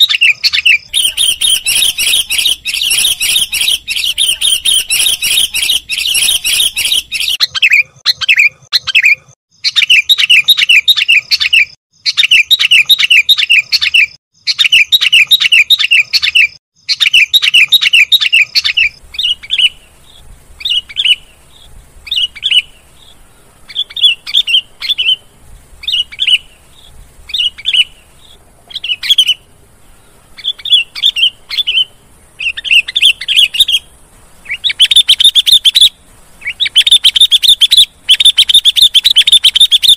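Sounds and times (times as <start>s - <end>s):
bulbul chirping: 0.0s - 39.9s.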